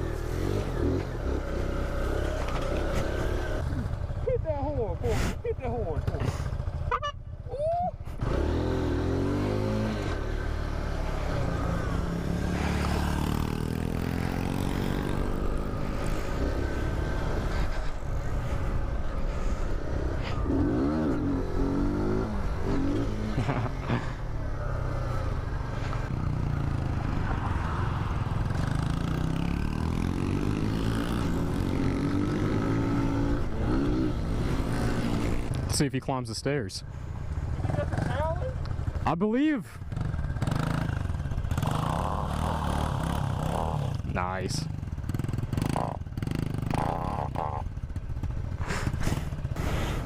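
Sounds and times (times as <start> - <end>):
mini-bike engines revving: 0.0 - 35.9, 37.0 - 38.9, 39.7 - 50.0.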